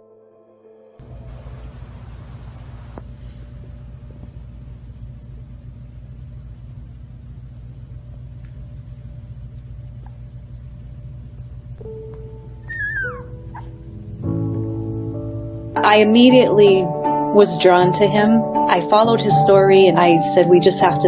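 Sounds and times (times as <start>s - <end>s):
low rumble: 1.0s - 12.5s
faint even hum: 1.0s - 16.9s.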